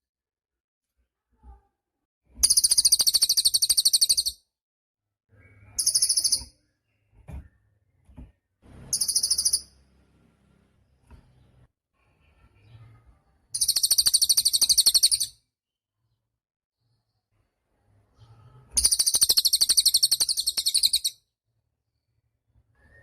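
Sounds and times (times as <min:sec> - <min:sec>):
songbird singing fast high trills: 0:18.8 - 0:21.1.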